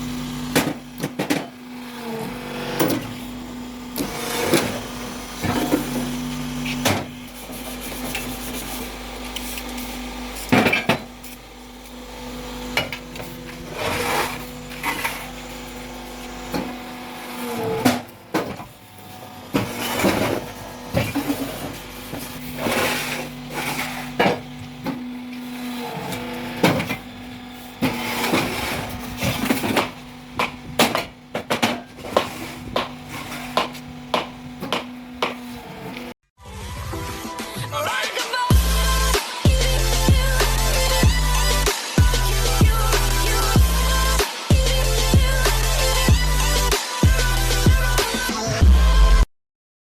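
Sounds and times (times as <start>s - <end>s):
block-making machine motor hum: 0.0s - 36.1s
machine clanks and knocks: 27.8s - 35.5s.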